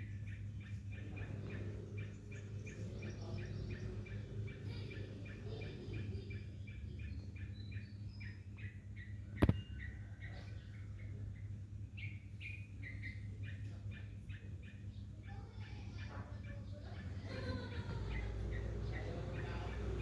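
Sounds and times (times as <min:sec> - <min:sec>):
bulbul calling: 0:00.0 - 0:20.0
steady low hum: 0:00.0 - 0:20.0
sharp click: 0:09.4 - 0:09.6.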